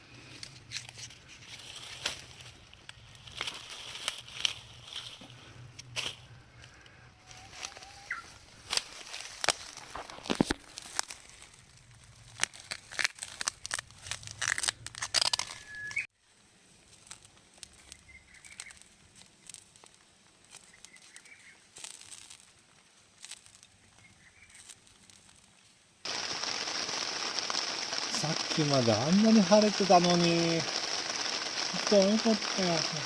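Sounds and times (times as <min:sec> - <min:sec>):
irregular clicks and crackles: 0:00.0 - 0:16.0, 0:16.8 - 0:33.0
faint bird chirps: 0:07.1 - 0:08.4, 0:15.4 - 0:16.1, 0:20.6 - 0:21.6
steady rain shower: 0:26.1 - 0:33.0.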